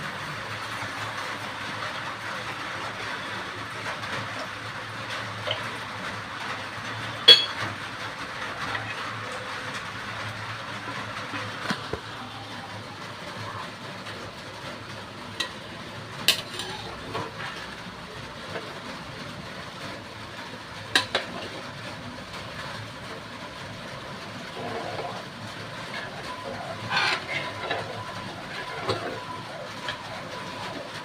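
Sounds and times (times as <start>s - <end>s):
curry sizzling in a pan: 0.2s - 31.0s
spoon clinking against pan: 7.3s - 7.6s.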